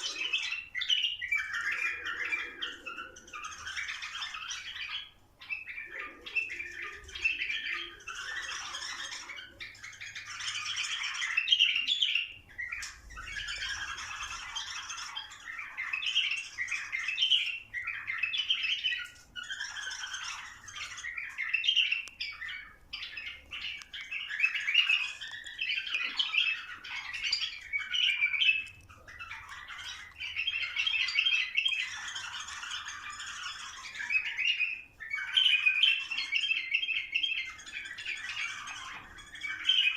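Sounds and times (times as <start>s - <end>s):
bulbuls singing and chattering: 0.0s - 39.9s.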